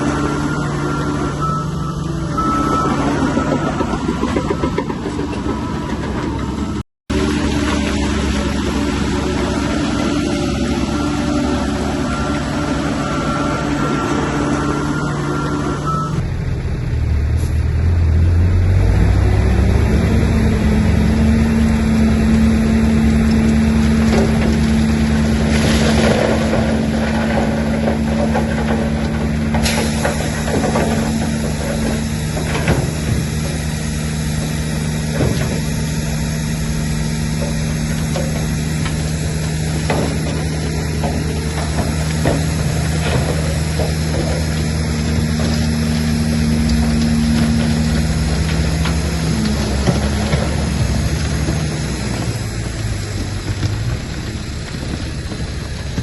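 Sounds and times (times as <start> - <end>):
bulldozer diesel engine running: 0.0 - 56.0
metal clanks and knocks: 24.0 - 33.8, 37.2 - 56.0.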